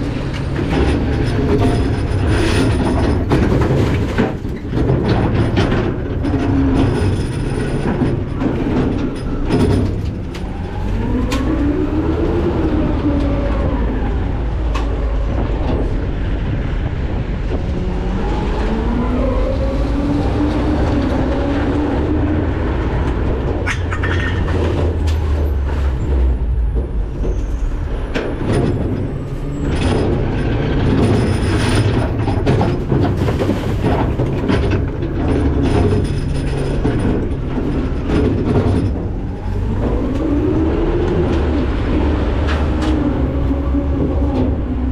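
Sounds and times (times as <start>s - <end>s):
garbage truck packer rumbling: 0.0s - 44.9s
cracks and knocks: 0.2s - 10.6s, 22.9s - 40.3s.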